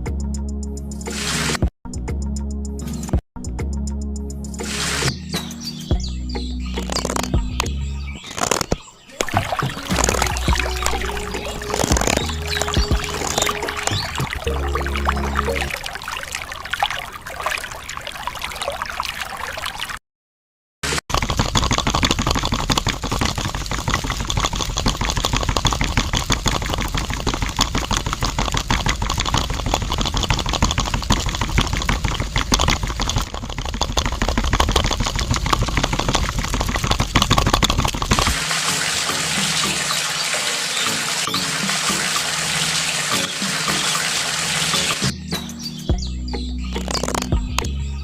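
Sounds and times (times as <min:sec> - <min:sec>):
water pouring and splashing: 0:06.8 - 0:07.4, 0:08.2 - 0:20.0, 0:20.9 - 0:45.2
running water hiss: 0:09.1 - 0:18.7, 0:37.6 - 0:45.1.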